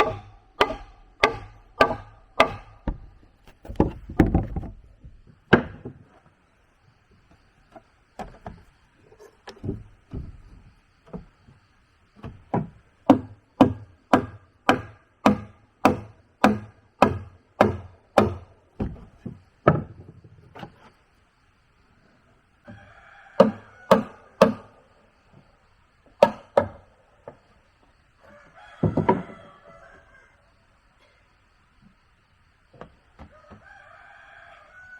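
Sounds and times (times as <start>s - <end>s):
tool striking wood: 0.0s - 4.7s, 12.2s - 20.0s, 23.4s - 24.8s, 26.2s - 26.8s.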